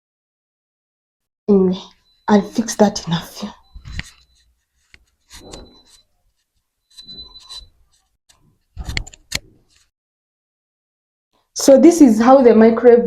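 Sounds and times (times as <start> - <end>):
rustling and rubbing: 3.1 - 9.9
sharp clicks and knocks: 3.7 - 9.9.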